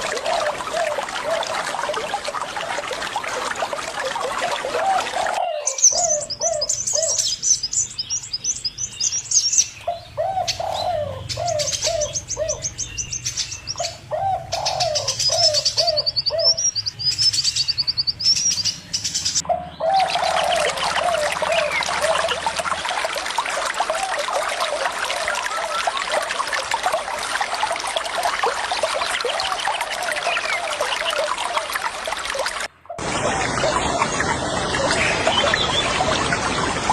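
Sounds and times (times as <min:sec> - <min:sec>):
running water: 0:00.0 - 0:36.9
birds calling: 0:04.0 - 0:26.5, 0:29.0 - 0:36.9
high-pitched bird twittering: 0:14.6 - 0:19.4.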